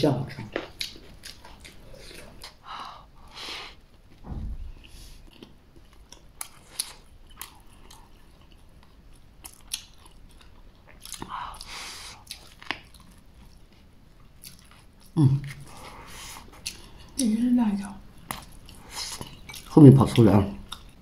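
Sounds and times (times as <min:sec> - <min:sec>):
biting and chewing food: 0:05.0 - 0:15.8.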